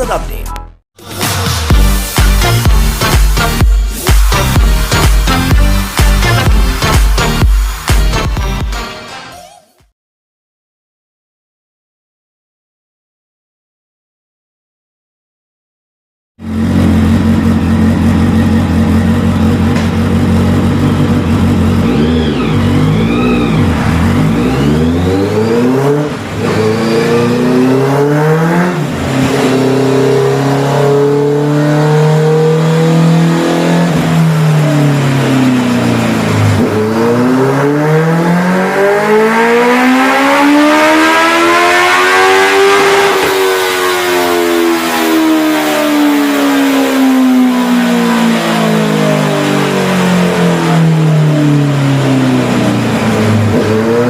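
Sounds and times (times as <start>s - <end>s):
motorcycle engine revving: 16.4s - 54.0s.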